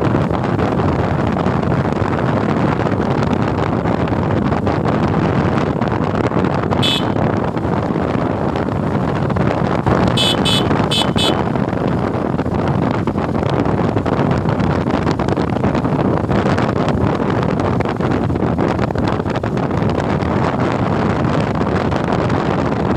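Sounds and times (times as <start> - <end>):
motorcycle road and engine noise: 0.0 - 22.9
wind rushing over microphone: 0.0 - 22.9
vehicle horn beeps: 6.8 - 7.2, 10.1 - 11.5.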